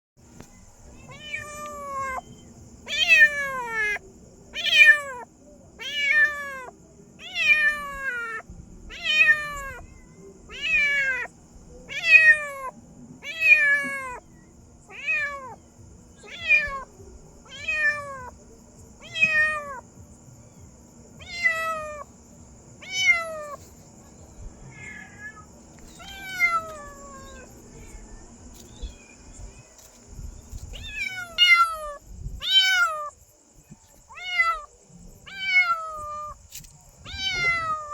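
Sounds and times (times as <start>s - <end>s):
cat meowing: 1.0s - 4.0s, 4.6s - 11.3s, 11.9s - 14.2s, 14.9s - 15.6s, 16.2s - 16.9s, 17.5s - 18.3s, 19.0s - 19.8s, 21.2s - 22.1s, 22.8s - 23.6s, 24.7s - 28.0s, 30.8s - 33.1s, 34.1s - 34.7s, 35.3s - 36.4s, 37.1s - 37.9s.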